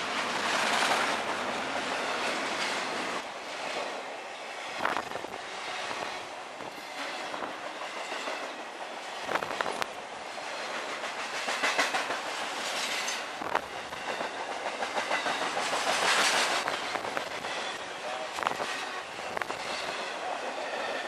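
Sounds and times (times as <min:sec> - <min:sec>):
train wheels rumbling on rails: 0:00.0 - 0:21.0
wheels clicking over rail joints: 0:06.6 - 0:17.8.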